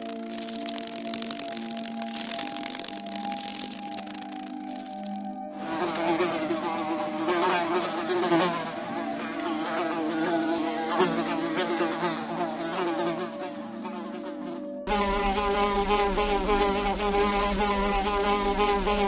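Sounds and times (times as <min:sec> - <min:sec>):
insect buzzing: 0:00.0 - 0:19.0.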